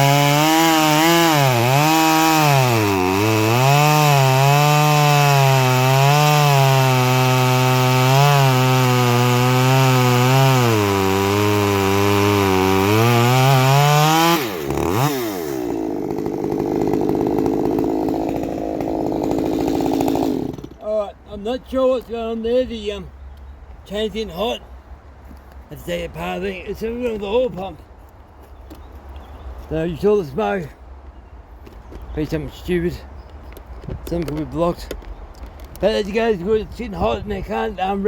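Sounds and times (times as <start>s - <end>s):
chainsaw cutting wood: 0.0s - 20.9s.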